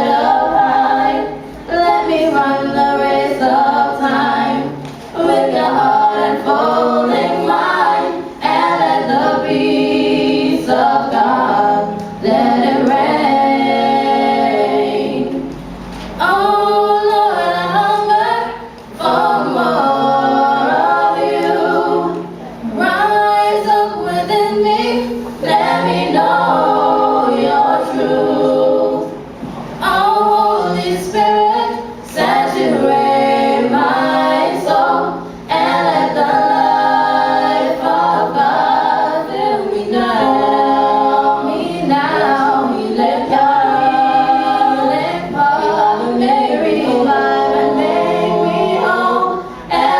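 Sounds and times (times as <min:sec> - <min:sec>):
vocal group singing in harmony: 0:00.0 - 0:49.9.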